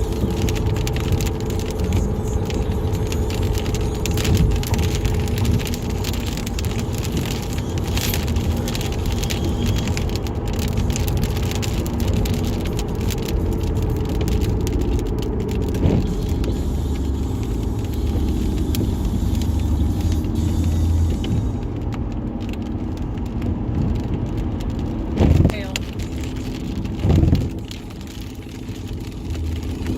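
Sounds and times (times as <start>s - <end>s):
car engine and road rumble: 0.0s - 29.9s
rain striking car: 0.0s - 29.9s.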